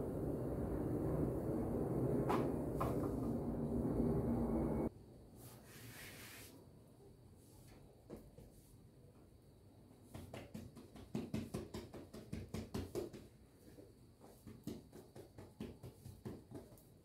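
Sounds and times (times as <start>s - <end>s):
hands patting bread dough: 10.0s - 17.0s.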